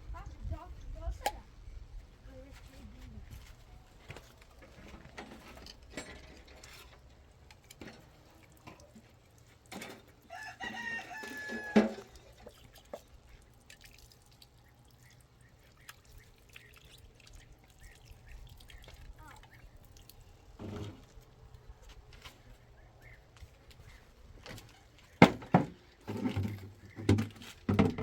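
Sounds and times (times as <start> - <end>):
rooster crowing: 10.3 - 12.1.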